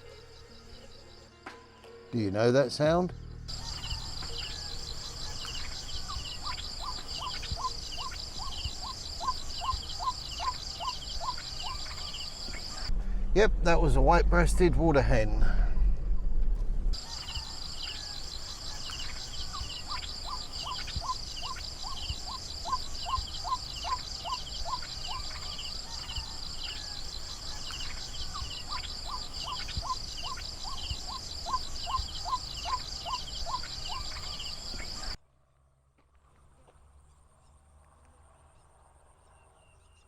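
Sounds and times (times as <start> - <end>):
insects trilling: 0.0 - 12.9, 17.0 - 35.2
bird calling rising notes: 3.2 - 14.7, 17.0 - 35.2.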